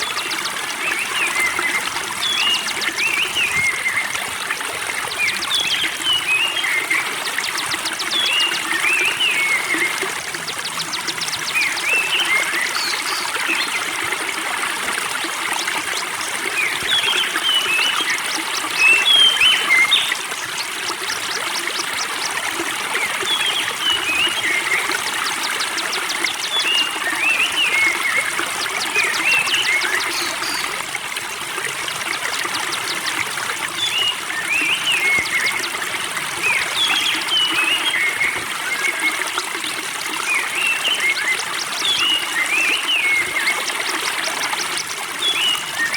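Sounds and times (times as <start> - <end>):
spring water trickling: 0.0 - 45.9
small birds chirping: 5.2 - 13.9, 15.5 - 30.8.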